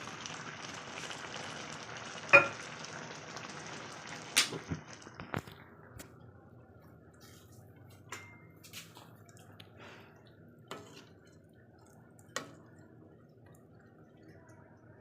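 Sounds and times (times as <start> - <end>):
liquid dripping in a pan: 9.0 - 15.0.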